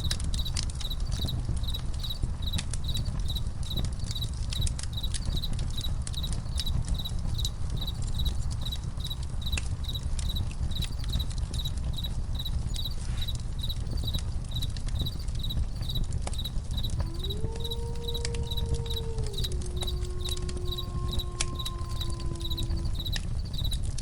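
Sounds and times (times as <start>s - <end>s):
crickets chirping: 0.0s - 23.9s
campfire crackling and popping: 0.0s - 24.0s
low rumble: 16.6s - 23.7s.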